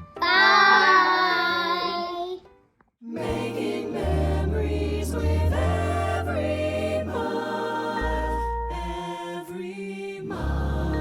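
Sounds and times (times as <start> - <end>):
song with backing music: 3.1 - 11.0.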